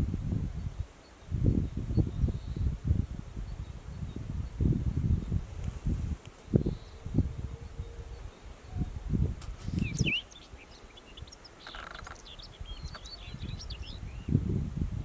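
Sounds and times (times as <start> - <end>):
wind rumble on microphone: 0.0 - 15.0
bird singing high notes: 9.8 - 14.3.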